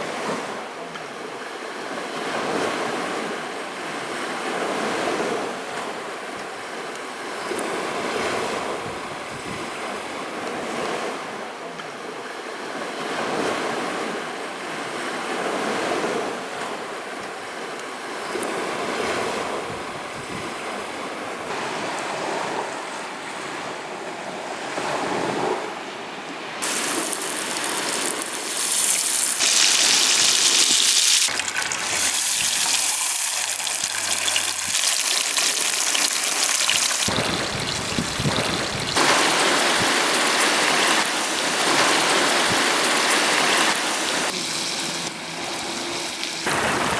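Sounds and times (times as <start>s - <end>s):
small waves breaking on shore: 0.0s - 46.9s
steady hiss: 26.6s - 46.9s
wind on microphone: 36.7s - 44.3s.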